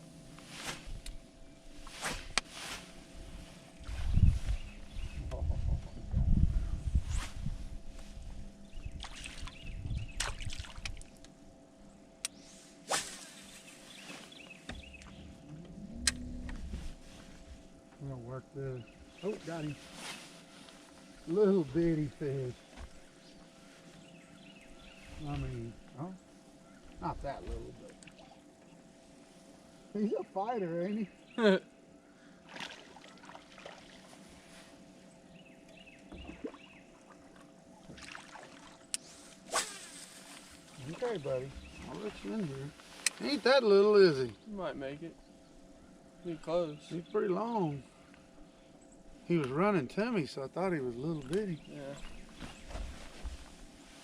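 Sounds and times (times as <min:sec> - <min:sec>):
faint steady hum: 0:00.0 - 0:54.0
water sloshing and splashing: 0:09.0 - 0:11.2, 0:32.5 - 0:34.2, 0:36.2 - 0:38.9.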